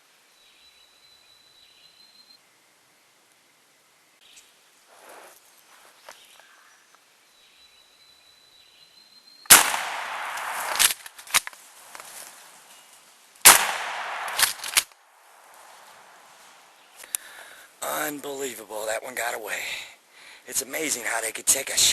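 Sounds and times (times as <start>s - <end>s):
shotgun blasts: 9.5s - 11.5s, 13.4s - 14.9s.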